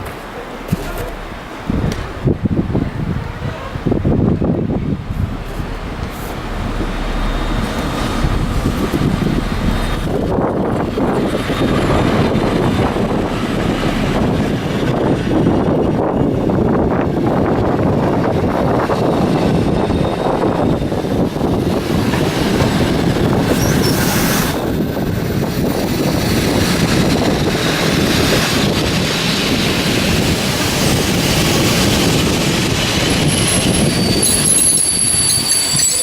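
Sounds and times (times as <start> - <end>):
train rumbling past: 0.0 - 36.0
train wheel squeal: 22.6 - 26.0, 31.5 - 36.0.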